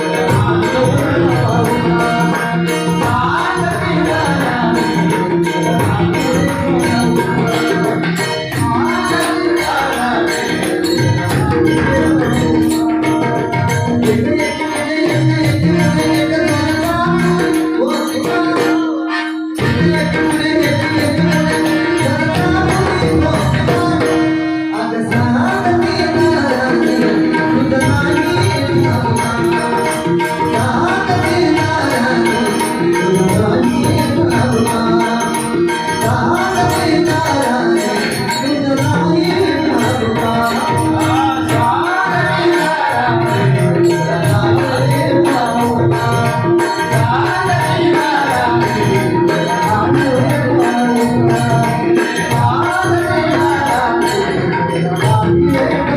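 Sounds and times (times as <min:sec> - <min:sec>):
hand drum rhythm: 0:00.0 - 0:55.9
person singing: 0:14.0 - 0:55.9.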